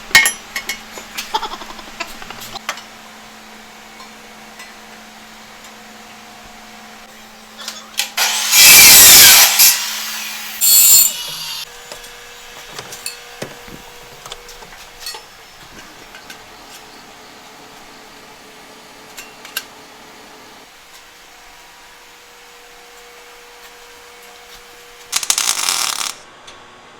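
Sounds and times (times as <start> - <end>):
power tool cutting: 8.0 - 14.2.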